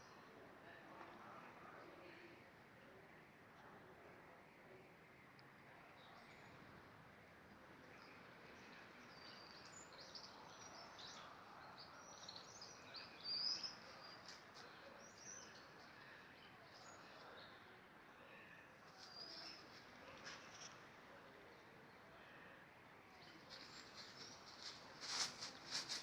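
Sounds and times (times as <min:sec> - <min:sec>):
small birds chirping: 0:07.9 - 0:17.7, 0:18.8 - 0:22.1, 0:23.1 - 0:26.0.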